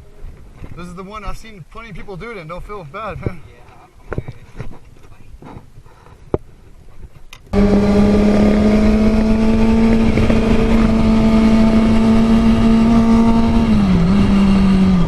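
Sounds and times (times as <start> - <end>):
road and wind noise: 0.0 - 15.0
vehicle engine running: 7.5 - 15.0.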